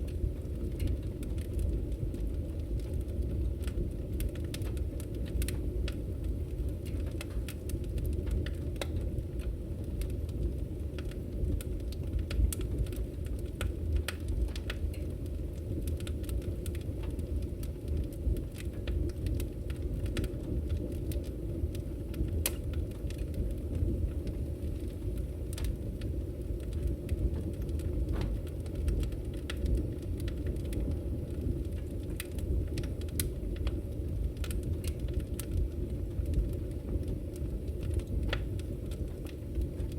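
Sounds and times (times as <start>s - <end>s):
fire crackling and popping: 0.0s - 39.9s
fire rumbling in a stove: 0.0s - 39.9s.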